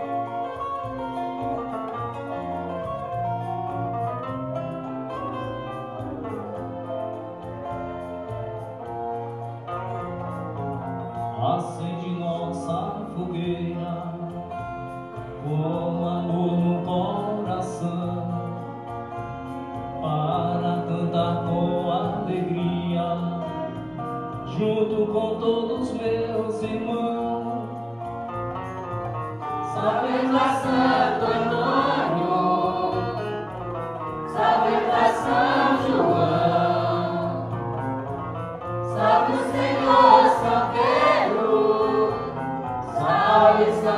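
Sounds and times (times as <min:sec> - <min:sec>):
guitar accompaniment: 0:00.0 - 0:43.9
group singing a hymn: 0:29.6 - 0:37.6, 0:38.8 - 0:43.9.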